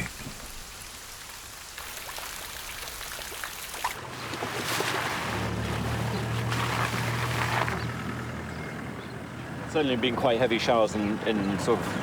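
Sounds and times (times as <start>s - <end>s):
rain hissing: 0.0s - 3.7s
tires through puddles: 1.8s - 12.0s
vehicle engine running: 5.1s - 12.0s.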